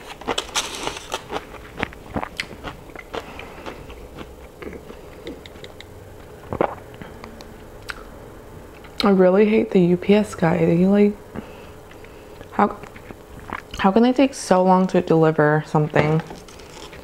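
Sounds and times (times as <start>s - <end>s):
person chewing food: 0.0s - 8.1s, 11.4s - 13.8s
wet mouth clicks: 4.6s - 5.9s, 6.5s - 8.1s.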